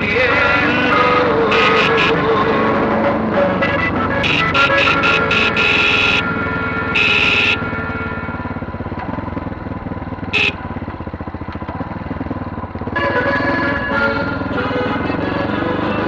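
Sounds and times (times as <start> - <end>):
dirt bike engine running steadily: 0.0 - 16.0.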